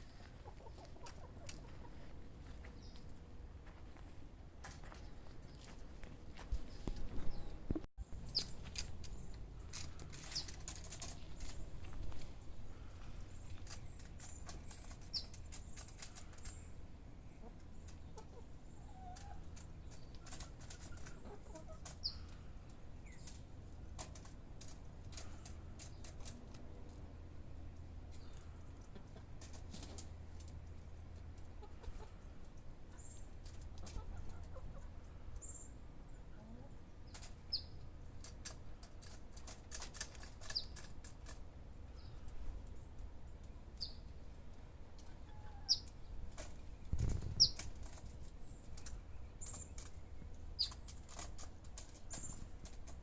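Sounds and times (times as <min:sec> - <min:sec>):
chickens clucking: 0:00.0 - 0:02.8, 0:08.3 - 0:41.4, 0:42.2 - 0:53.0
bird wing flaps: 0:46.9 - 0:47.8.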